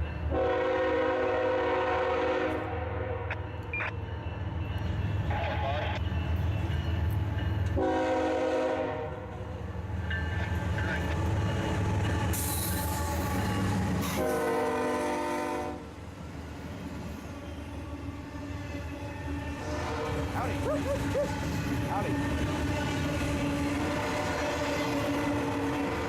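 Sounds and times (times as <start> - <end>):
passing train rumble: 0.0 - 26.0
locomotive horn blasts: 0.3 - 3.4, 7.8 - 9.3, 14.0 - 15.9, 19.6 - 20.4, 23.7 - 26.0.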